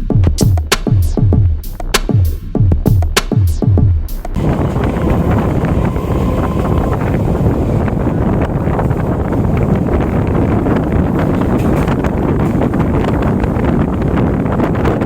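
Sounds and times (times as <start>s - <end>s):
electric train running: 4.4s - 14.9s
wind buffeting microphone: 4.4s - 15.0s.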